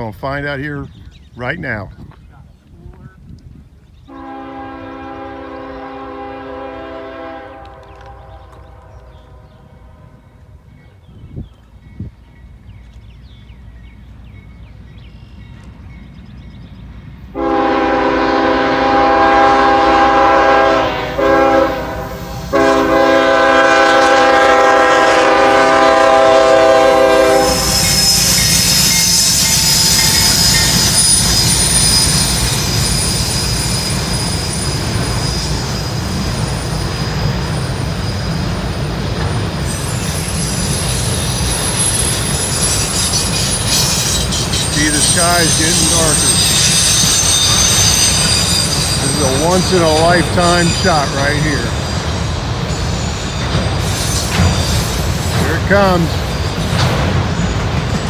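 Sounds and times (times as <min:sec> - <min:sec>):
locomotive air horn blasts: 0:04.1 - 0:10.1, 0:17.4 - 0:30.9, 0:44.8 - 0:46.6, 0:49.0 - 0:51.7
freight train rumbling past: 0:04.1 - 0:58.0
high-pitched wheel squeal: 0:26.8 - 0:58.0.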